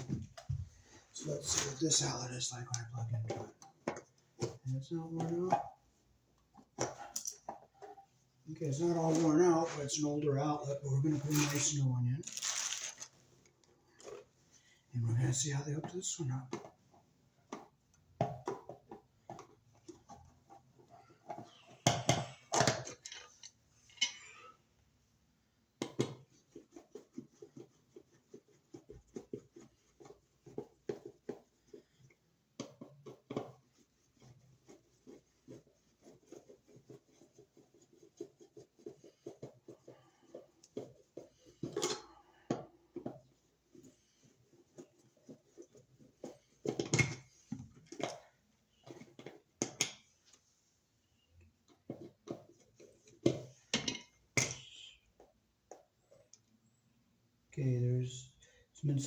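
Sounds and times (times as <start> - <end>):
wires being handled: 11.0 - 14.2.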